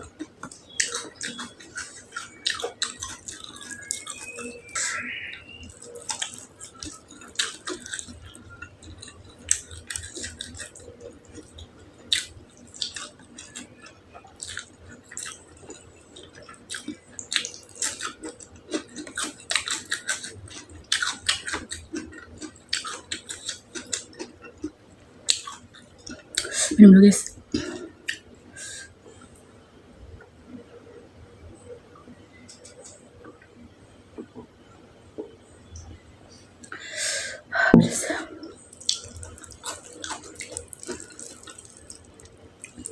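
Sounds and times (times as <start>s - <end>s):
close chewing with wet mouth clicks: 0.0s - 26.6s, 38.6s - 42.9s.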